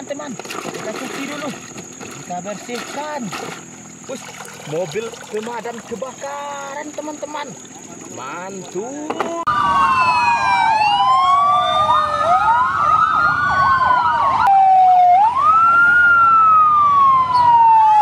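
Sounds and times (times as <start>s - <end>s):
fast siren yelp: 9.5s - 18.0s
fire engine sirens wailing: 9.5s - 18.0s.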